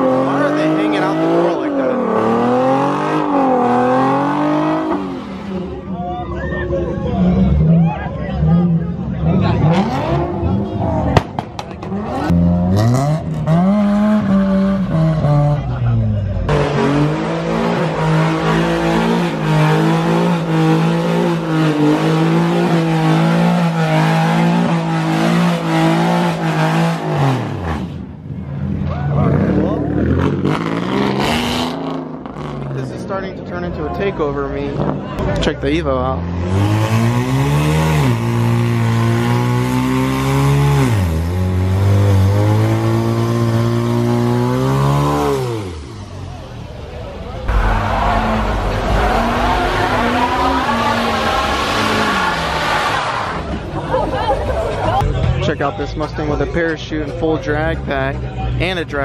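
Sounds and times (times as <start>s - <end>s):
car engine revving high: 0.0s - 5.8s, 7.1s - 28.2s, 29.2s - 32.8s, 36.2s - 46.5s, 47.2s - 53.7s.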